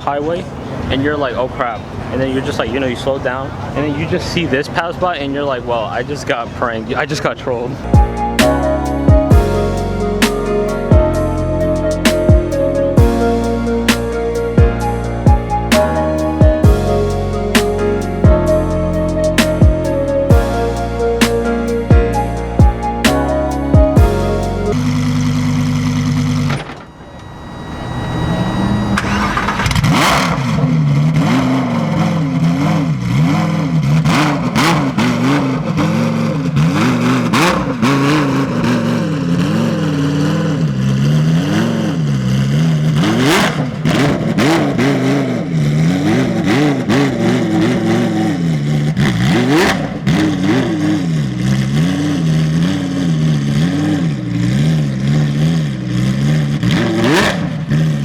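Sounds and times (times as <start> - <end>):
race car engine revving: 7.8 - 58.0
exhaust cracks: 28.3 - 58.0.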